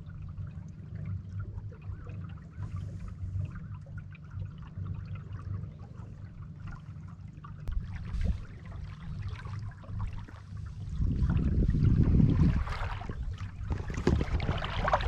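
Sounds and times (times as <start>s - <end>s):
steady low hum: 0.0s - 15.0s
water trickling and splashing: 0.0s - 15.0s.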